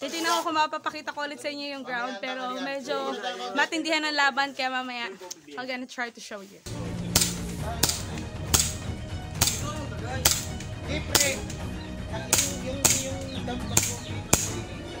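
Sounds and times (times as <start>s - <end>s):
airsoft gun shots: 7.1s - 11.6s, 12.3s - 14.6s.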